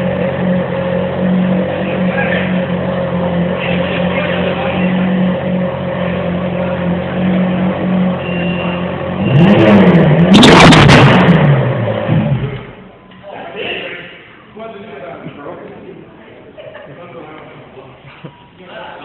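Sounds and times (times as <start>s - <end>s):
car engine idling and revving: 0.0s - 12.9s
exhaust pops and crackles: 10.2s - 12.7s.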